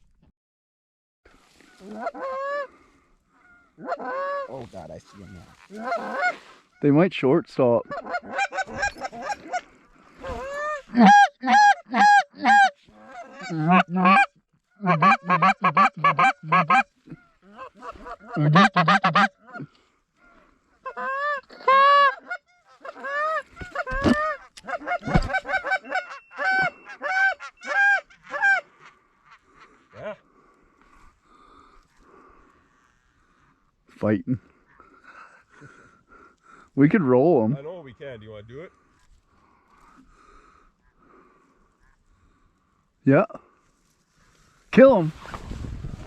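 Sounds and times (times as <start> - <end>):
goose honking: 1.6 - 6.9, 7.8 - 19.7, 20.8 - 30.0.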